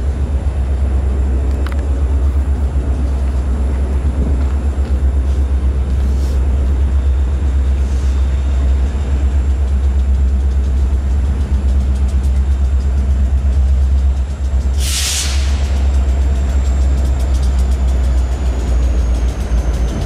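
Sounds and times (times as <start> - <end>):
distant diesel locomotives rumbling: 0.0 - 20.0.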